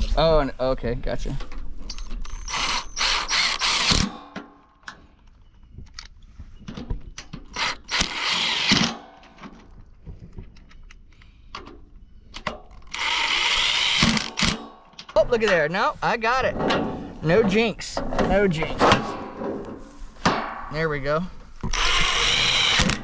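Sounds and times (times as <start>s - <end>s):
metal parts knocking and clinking: 1.8s - 4.5s.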